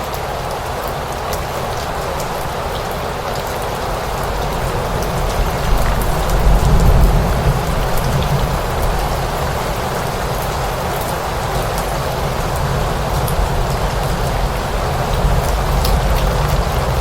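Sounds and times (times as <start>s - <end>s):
steady rain falling: 0.0s - 17.0s
rain drop ticks: 9.9s - 17.0s.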